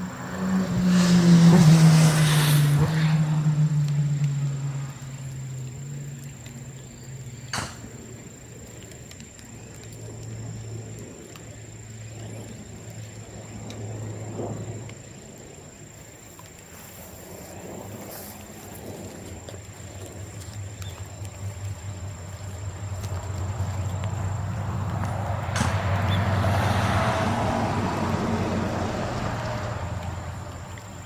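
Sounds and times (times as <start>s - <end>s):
low hum: 0.0s - 8.8s
low engine hum: 0.0s - 31.0s
bonfire crackling: 12.2s - 31.0s.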